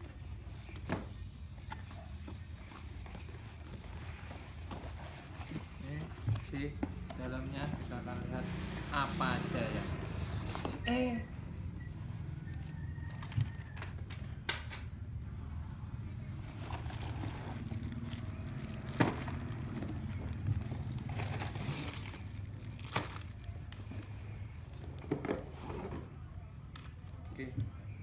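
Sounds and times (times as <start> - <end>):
plastic packaging crinkling: 16.5 - 25.0.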